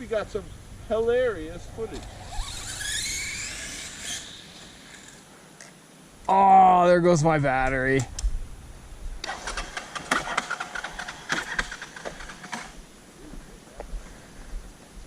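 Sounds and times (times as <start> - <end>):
motorcycle engine cranking: 9.2 - 12.8.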